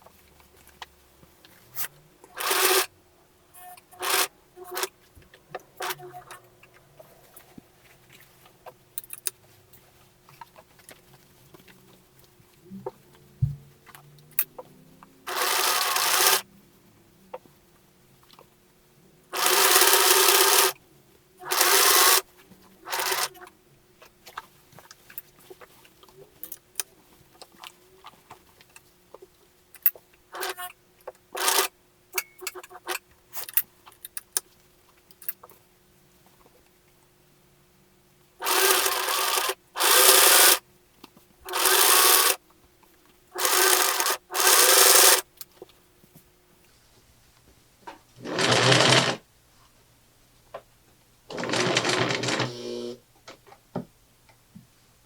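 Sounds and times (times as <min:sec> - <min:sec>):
sewing machine stitching: 0:02.3 - 0:02.9, 0:03.6 - 0:04.9, 0:05.8 - 0:06.4, 0:15.3 - 0:16.4, 0:19.4 - 0:20.8, 0:21.4 - 0:22.2, 0:22.8 - 0:23.5, 0:30.4 - 0:30.7, 0:31.4 - 0:31.7, 0:38.4 - 0:40.6, 0:41.5 - 0:42.4, 0:43.4 - 0:45.2, 0:48.2 - 0:49.2, 0:51.3 - 0:53.0.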